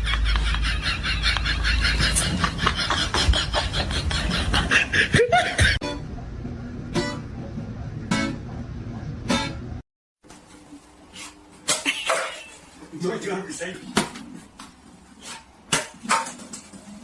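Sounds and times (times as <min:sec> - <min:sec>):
laughter: 0:00.0 - 0:05.8
plucked guitar music: 0:05.8 - 0:08.6, 0:09.2 - 0:09.8.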